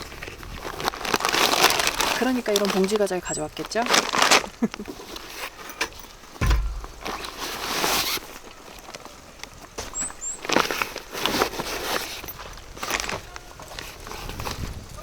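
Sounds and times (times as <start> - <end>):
plastic packaging crinkling: 0.2 - 5.6
gear clicks: 5.8 - 7.5
dull thump: 6.4 - 7.9.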